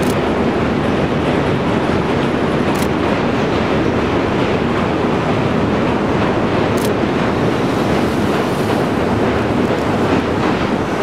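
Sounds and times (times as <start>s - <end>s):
sharp click: 0.0s - 0.2s, 2.7s - 3.0s
train rumbling across bridge: 0.0s - 11.0s.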